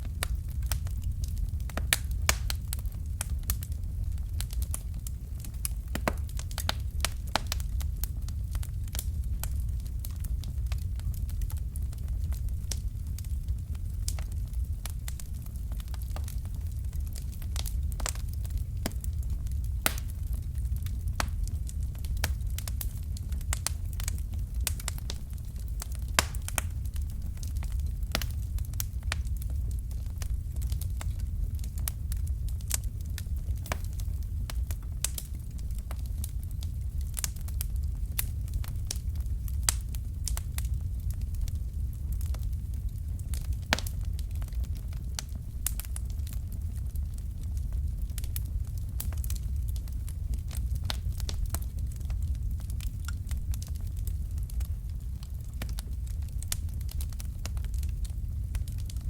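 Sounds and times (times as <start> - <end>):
fireplace fire crackling: 0.0 - 59.0
flames rumbling: 0.0 - 59.0.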